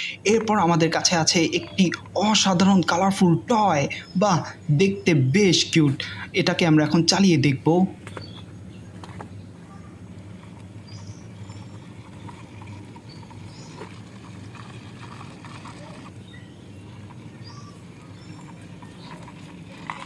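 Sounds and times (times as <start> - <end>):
toy vehicle wheels clicking: 10.2 - 20.0.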